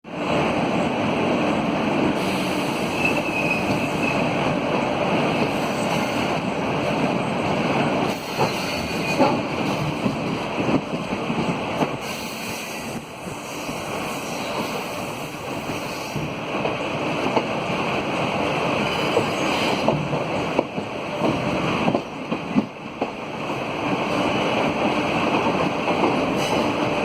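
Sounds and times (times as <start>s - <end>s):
train rushing noise: 0.1s - 27.0s.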